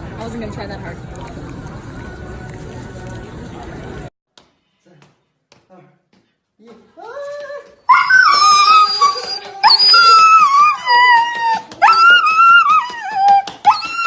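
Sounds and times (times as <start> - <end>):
puppy howling: 7.3 - 14.0.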